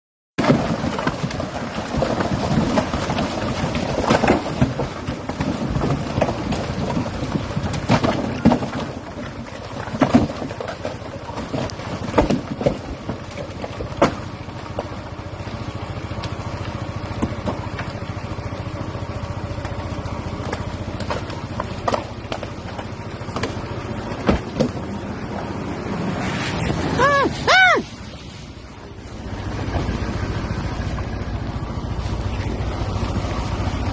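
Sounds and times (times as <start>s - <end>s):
rocks knocking: 0.4s - 15.0s, 19.5s - 26.0s
rocks tumbling down a slope: 0.4s - 33.9s.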